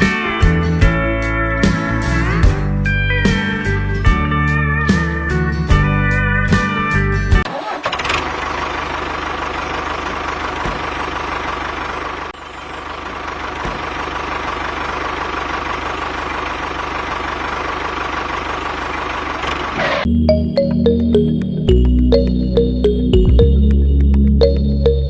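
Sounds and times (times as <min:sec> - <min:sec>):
small engine running: 0:07.5 - 0:20.1.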